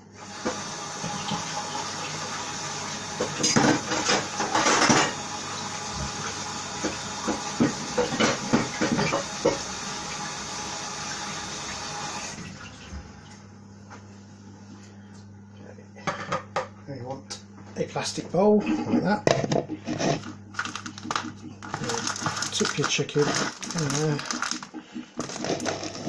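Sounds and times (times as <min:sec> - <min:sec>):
tap running into sink: 0:00.4 - 0:01.6, 0:03.2 - 0:10.2.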